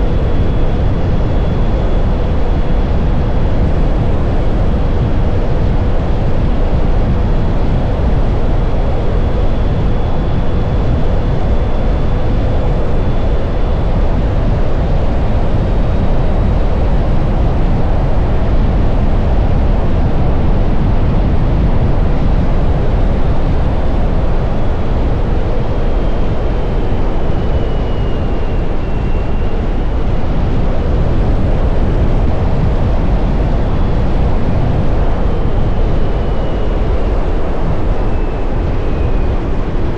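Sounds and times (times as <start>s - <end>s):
faint thin whine: 0.0s - 39.9s
wind rush on microphone: 0.0s - 39.9s.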